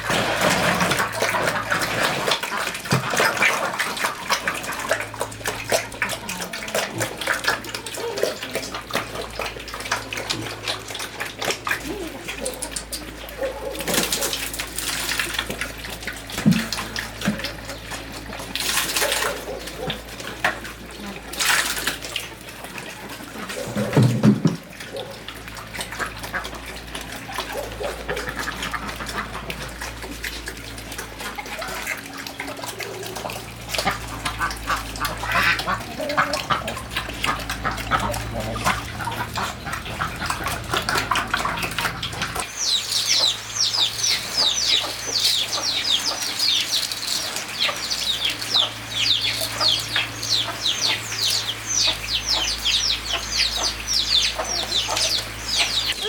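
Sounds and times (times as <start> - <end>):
poultry calling: 30.7 - 56.0.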